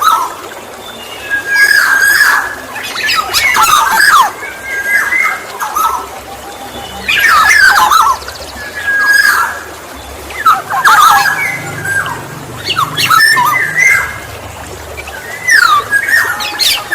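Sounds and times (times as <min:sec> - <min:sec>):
bird harsh squawks: 0:10.4 - 0:14.3.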